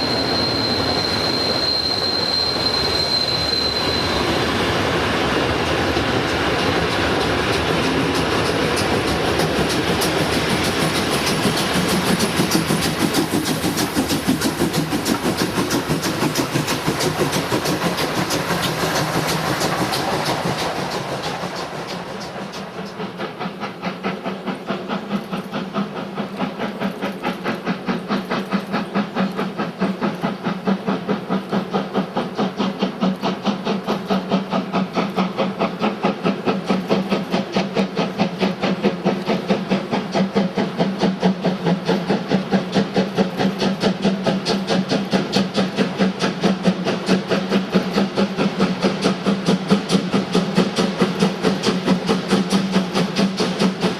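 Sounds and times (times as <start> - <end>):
steam locomotive exhaust beats: 0.0 - 53.9
train wheels clattering on rails: 0.0 - 53.9.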